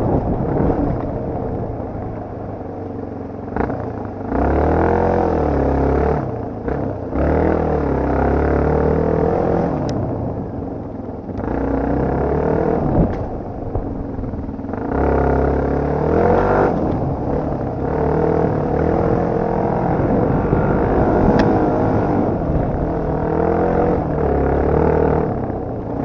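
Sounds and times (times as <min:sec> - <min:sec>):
dirt bike engine revving: 0:11.4 - 0:13.2, 0:14.2 - 0:26.0.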